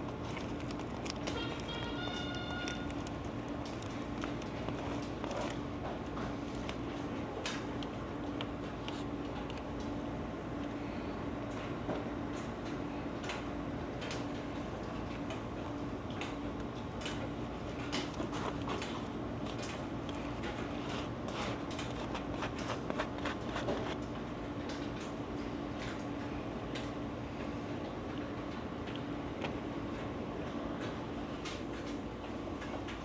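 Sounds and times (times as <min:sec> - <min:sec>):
steady hum: 0:00.0 - 0:11.5, 0:14.3 - 0:24.0.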